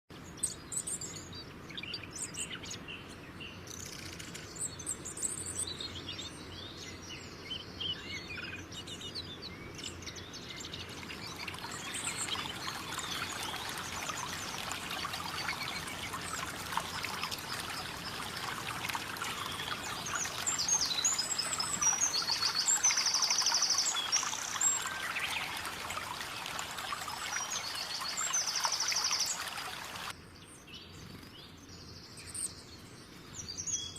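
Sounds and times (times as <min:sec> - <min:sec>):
birds chirping and singing: 0:05.6 - 0:30.1
trickling splashing water: 0:10.7 - 0:30.1.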